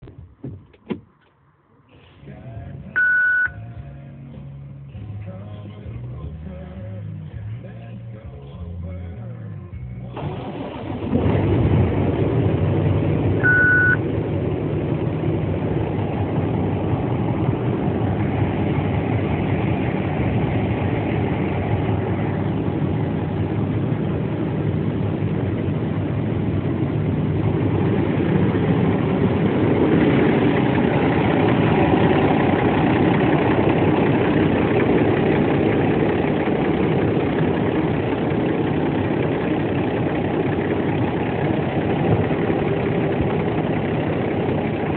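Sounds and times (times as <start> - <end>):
short beep: 3.0 - 3.6, 13.4 - 14.0
diesel truck engine idling: 4.6 - 44.9.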